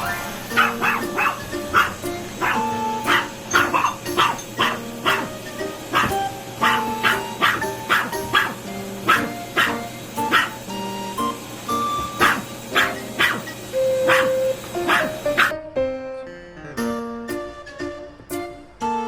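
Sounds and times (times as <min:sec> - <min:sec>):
background music: 0:00.0 - 0:19.0
dog barking: 0:00.1 - 0:10.6, 0:12.2 - 0:15.6.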